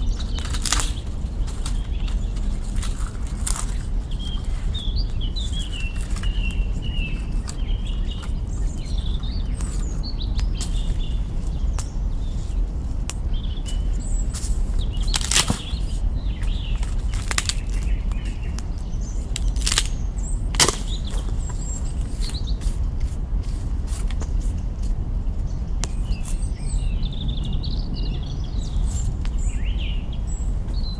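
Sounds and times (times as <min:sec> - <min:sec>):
small birds chirping: 0:00.0 - 0:30.9
campfire crackling: 0:00.2 - 0:01.3, 0:14.9 - 0:15.8, 0:16.8 - 0:17.9, 0:19.3 - 0:21.2
wood popping: 0:00.2 - 0:03.9, 0:15.0 - 0:15.9, 0:16.8 - 0:17.9, 0:19.3 - 0:21.4.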